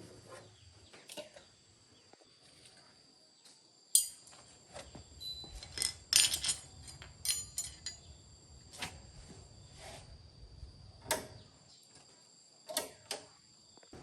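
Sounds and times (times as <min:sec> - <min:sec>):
small metal parts clinking: 0:04.0 - 0:04.4, 0:05.2 - 0:08.1.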